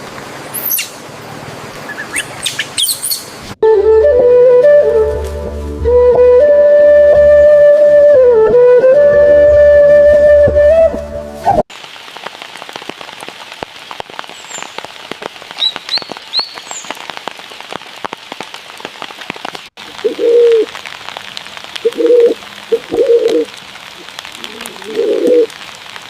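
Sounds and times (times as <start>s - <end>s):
rain pattering: 0.0s - 3.6s, 11.7s - 26.0s
bird chirps: 1.9s - 3.4s, 15.6s - 16.9s
flute tune: 3.6s - 11.7s
water dripping: 11.7s - 26.0s
dove cooing: 20.1s - 20.7s, 21.9s - 23.5s, 24.4s - 25.5s.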